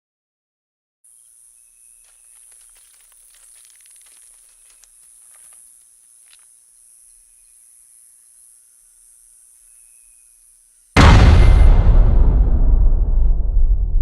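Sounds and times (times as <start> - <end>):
crackling rustles: 1.3 - 7.6.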